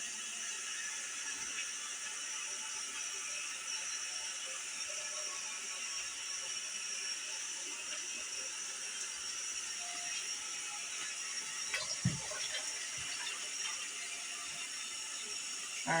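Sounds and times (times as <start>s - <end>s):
water running into a pot: 9.1s - 16.0s.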